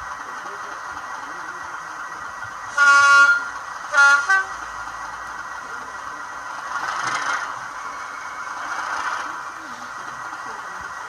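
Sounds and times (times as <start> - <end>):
decoder engine sound: 0.0 - 11.0
model train horn blast: 2.7 - 4.6.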